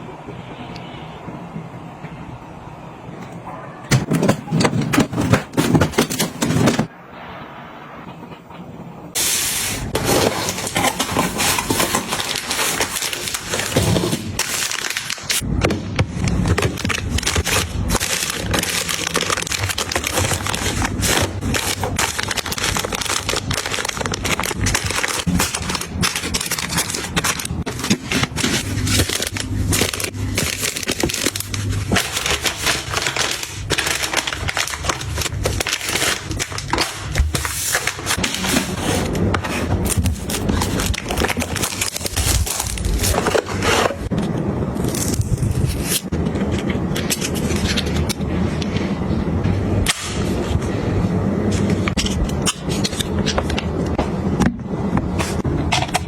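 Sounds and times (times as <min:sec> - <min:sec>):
packaging crackling and clicking: 0:09.9 - 0:15.5, 0:16.2 - 0:48.3.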